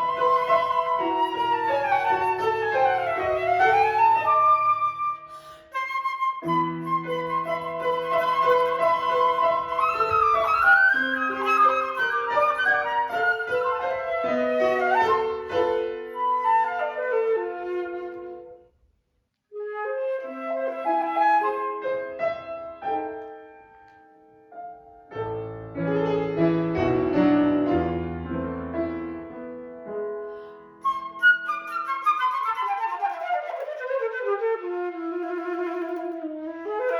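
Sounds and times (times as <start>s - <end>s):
piano accompaniment: 0.0s - 18.6s, 19.8s - 36.9s
flute melody: 0.0s - 18.7s, 19.5s - 23.5s, 30.4s - 36.9s.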